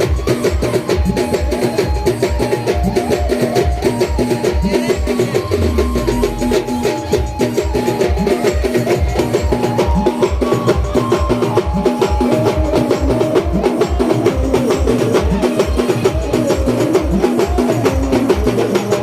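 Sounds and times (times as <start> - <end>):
band music: 0.0 - 19.0
wavering melody line: 0.1 - 19.0
bass drum beating: 3.0 - 8.3.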